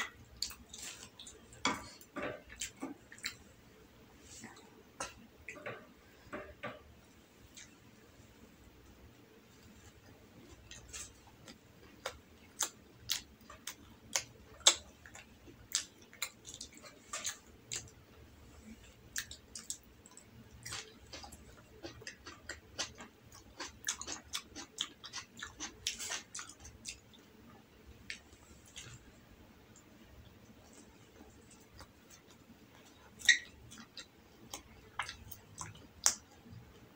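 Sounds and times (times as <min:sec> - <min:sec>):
person chewing with mouth clicks: 0:00.0 - 0:03.5, 0:10.6 - 0:18.0, 0:18.8 - 0:27.3, 0:29.7 - 0:36.7.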